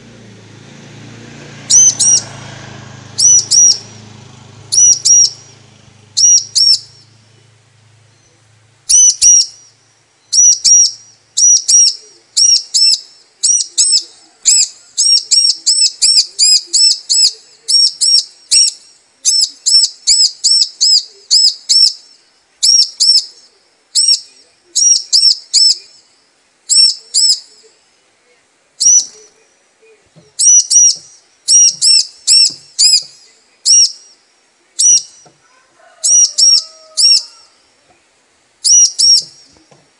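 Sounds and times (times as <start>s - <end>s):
bird high sharp chirps: 1.6s - 2.5s, 3.1s - 23.4s, 24.0s - 26.1s, 26.7s - 27.7s, 28.8s - 29.3s, 30.3s - 34.2s, 34.8s - 35.3s, 36.0s - 37.5s, 38.6s - 39.6s.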